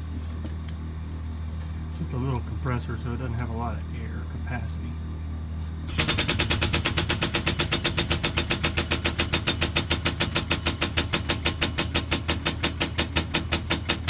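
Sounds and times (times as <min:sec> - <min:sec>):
piston air compressor pounding: 0:05.9 - 0:14.0.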